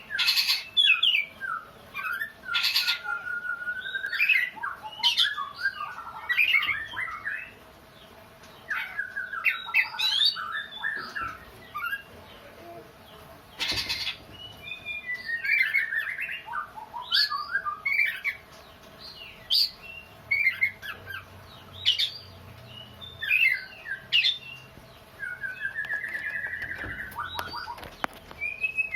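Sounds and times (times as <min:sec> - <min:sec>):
bird singing whistled phrases: 0:00.8 - 0:07.5, 0:14.4 - 0:18.4, 0:25.2 - 0:28.9.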